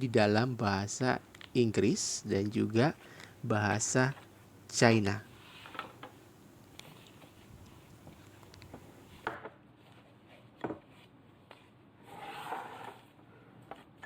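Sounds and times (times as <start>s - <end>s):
rubbing rustle: 5.3s - 6.0s.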